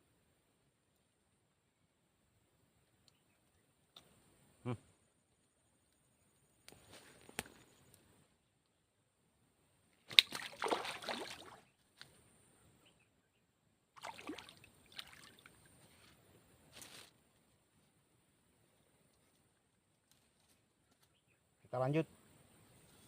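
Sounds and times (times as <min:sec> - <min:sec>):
water sloshing and splashing: 0:10.1 - 0:11.6, 0:14.0 - 0:15.7.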